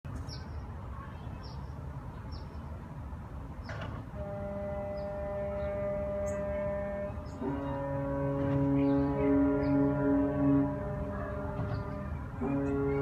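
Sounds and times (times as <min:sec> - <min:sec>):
brassy horn-like drone: 0:04.1 - 0:13.0.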